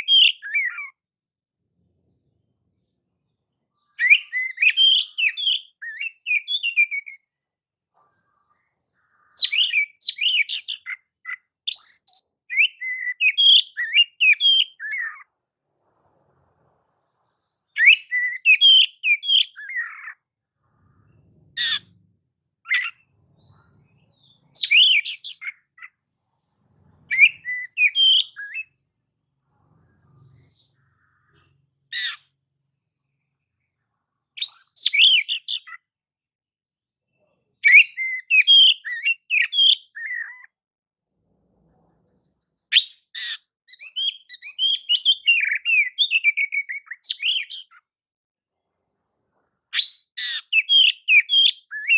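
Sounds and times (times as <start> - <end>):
bird whistling song: 0.0 - 1.0, 3.9 - 7.3, 9.3 - 15.3, 17.7 - 20.2, 22.7 - 23.6, 24.2 - 25.9, 27.1 - 28.8, 34.4 - 35.8, 37.6 - 40.5, 42.7 - 47.8, 49.8 - 51.9
sharp bird calls: 21.6 - 22.0, 22.7 - 23.0, 24.5 - 26.0, 31.2 - 32.3, 42.7 - 47.8, 49.7 - 51.9.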